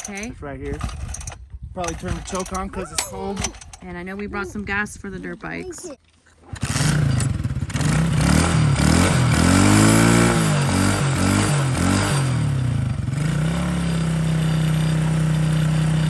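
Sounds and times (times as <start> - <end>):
dirt bike engine revving: 6.4 - 16.0.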